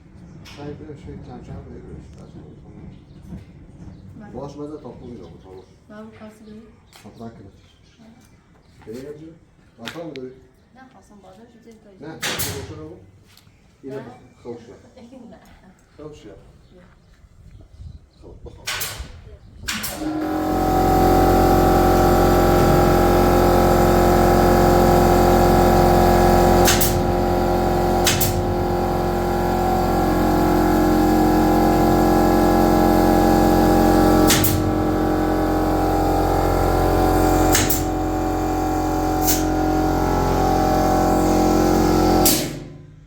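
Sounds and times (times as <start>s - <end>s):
power tool motor whining: 19.8s - 42.8s.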